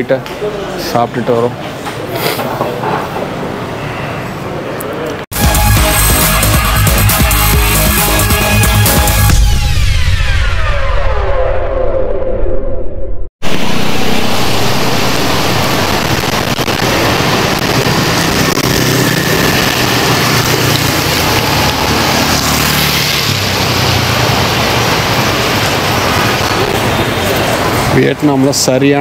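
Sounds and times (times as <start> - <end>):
rain hiss on wet road: 13.4 - 27.9
motorbike engines passing: 13.5 - 29.0.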